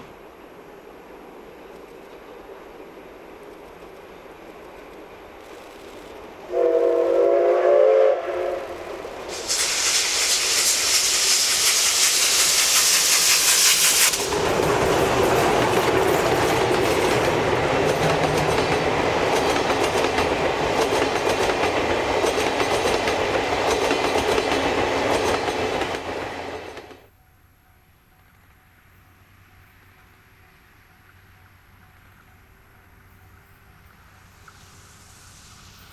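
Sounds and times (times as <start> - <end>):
steam hissing: 5.5 - 26.8, 34.0 - 35.9
steam locomotive whistle: 6.4 - 14.3
train wheels clacking on rails: 8.4 - 27.1.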